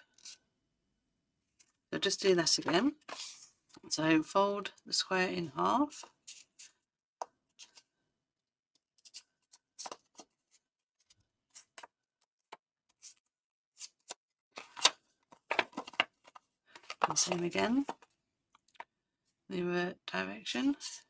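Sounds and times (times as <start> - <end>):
paper folding rustles: 2.7 - 3.5, 13.8 - 18.1.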